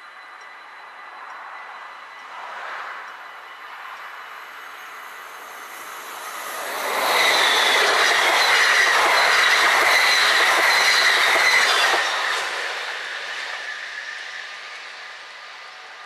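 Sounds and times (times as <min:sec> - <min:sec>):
high squeal: 0:00.0 - 0:16.0
train passing at speed: 0:00.0 - 0:16.0
wheels clacking over rail joints: 0:06.0 - 0:13.6.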